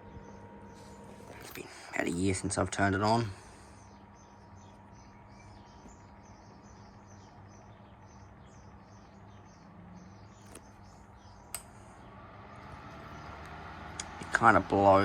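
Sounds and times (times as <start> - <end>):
box fan humming: 0.0 - 15.0
sharp click: 11.5 - 11.8.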